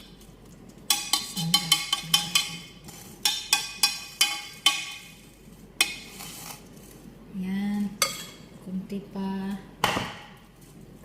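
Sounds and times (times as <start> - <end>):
spoon clinking on metal pot: 0.9 - 5.2, 8.0 - 8.4.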